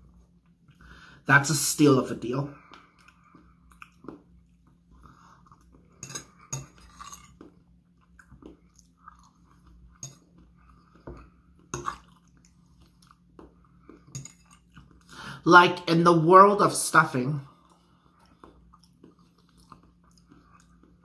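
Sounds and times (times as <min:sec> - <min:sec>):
chewing and mouth sounds: 0:02.6 - 0:15.1, 0:17.5 - 0:21.0
metal fork scraping a plate: 0:06.0 - 0:07.4.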